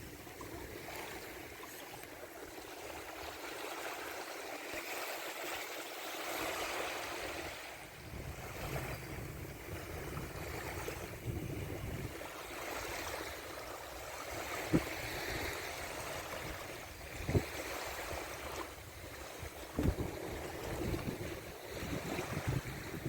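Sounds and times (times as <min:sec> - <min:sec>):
water rushing and splashing: 0:00.0 - 0:23.0
wind rumbling on microphone: 0:06.6 - 0:23.0.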